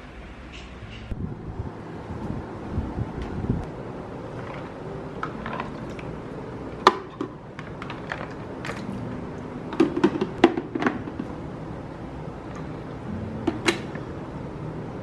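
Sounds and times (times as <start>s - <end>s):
objects clicking and knocking: 4.4s - 6.1s, 6.8s - 9.0s, 9.7s - 11.3s.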